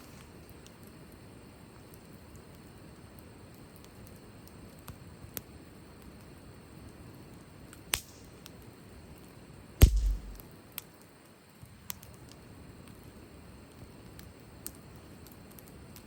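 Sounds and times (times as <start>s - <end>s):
firewood crackling and popping: 0.0s - 16.0s
low thump: 9.8s - 10.4s.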